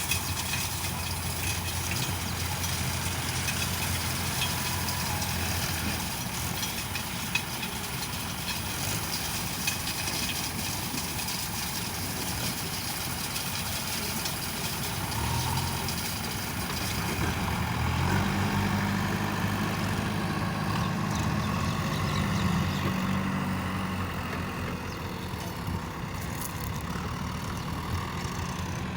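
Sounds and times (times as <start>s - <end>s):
diesel engine running and revving: 0.0s - 28.9s.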